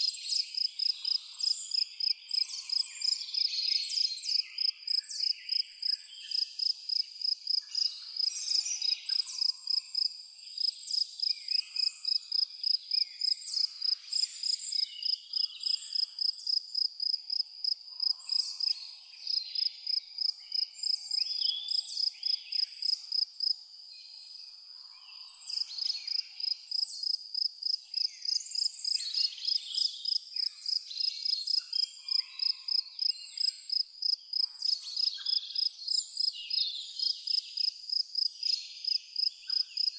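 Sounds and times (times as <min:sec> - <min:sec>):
cricket chirping: 0:00.0 - 0:39.9
birds calling and singing: 0:27.9 - 0:37.7.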